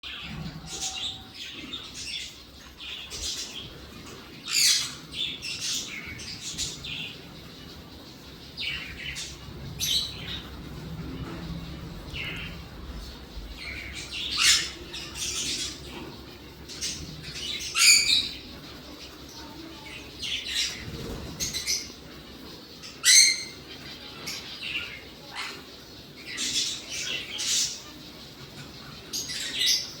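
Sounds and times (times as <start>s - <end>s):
parrots chirping: 0.0s - 30.0s
parrot squawking and chirping: 16.8s - 18.4s, 23.0s - 23.6s.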